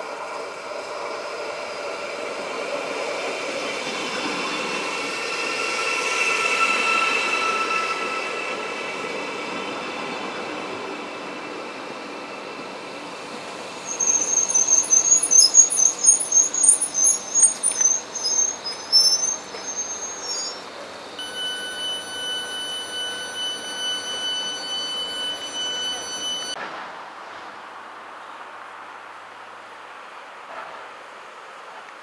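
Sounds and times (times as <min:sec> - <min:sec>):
train brakes squealing: 0:00.1 - 0:26.6
steady high tone: 0:04.0 - 0:11.5, 0:21.2 - 0:26.6.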